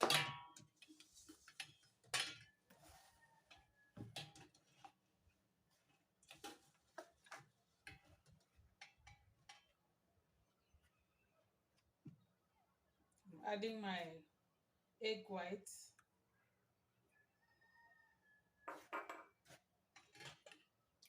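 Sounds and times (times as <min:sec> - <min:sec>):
kitchen utensils clicking and knocking: 0:00.0 - 0:02.6.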